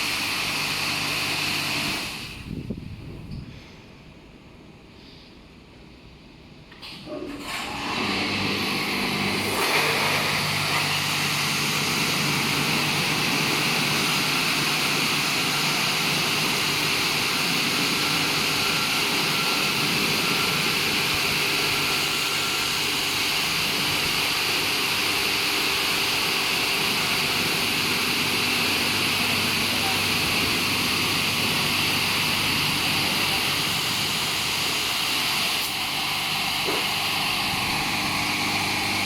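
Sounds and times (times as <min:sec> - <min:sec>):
car wash rushing hiss: 0:00.0 - 0:02.7, 0:06.8 - 0:39.0.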